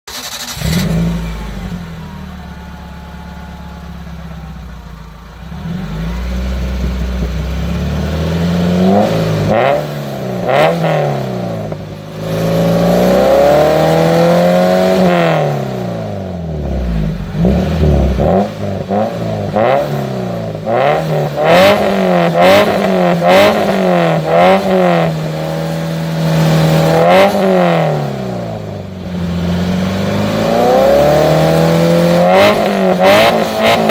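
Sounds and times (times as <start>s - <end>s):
car engine idling and revving: 0.1s - 33.9s.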